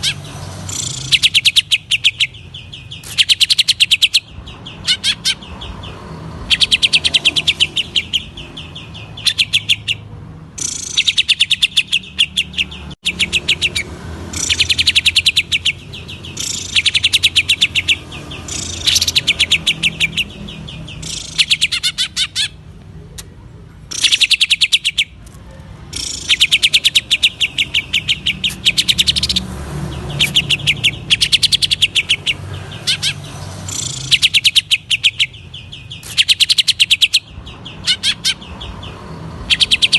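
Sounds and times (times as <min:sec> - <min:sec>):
bird singing fast sharp notes: 0:00.0 - 0:22.7, 0:23.9 - 0:25.2, 0:25.8 - 0:39.9.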